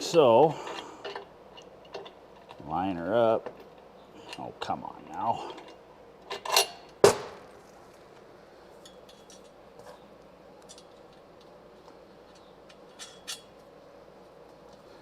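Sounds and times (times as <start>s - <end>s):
metal parts clinking: 5.0s - 6.9s, 12.3s - 13.6s.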